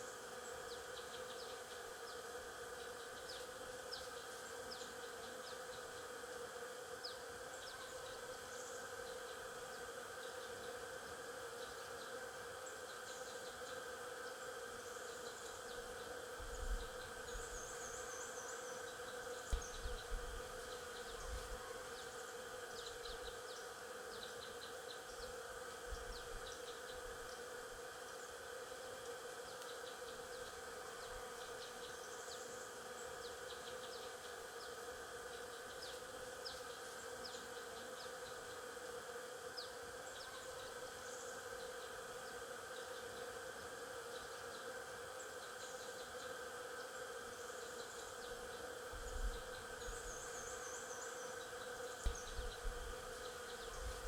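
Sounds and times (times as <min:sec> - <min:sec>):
bees buzzing: 0:08.5 - 0:25.8, 0:44.6 - 0:54.0.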